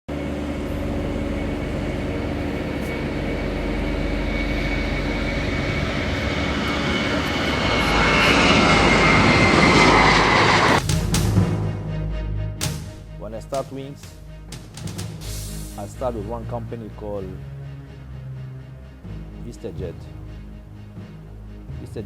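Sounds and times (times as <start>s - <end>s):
jet engines whining: 0.1s - 11.9s, 12.6s - 16.4s.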